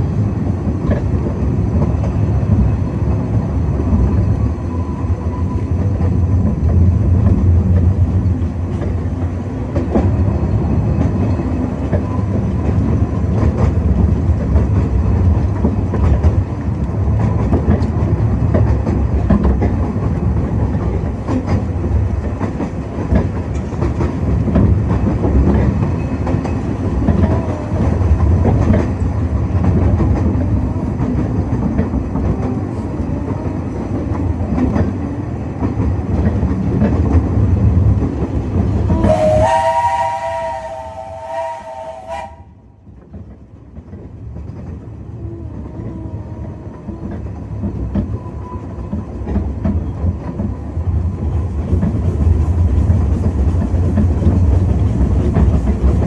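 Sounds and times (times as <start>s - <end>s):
train rumbling: 0.0s - 56.0s
wheels clicking over rail joints: 5.7s - 39.2s.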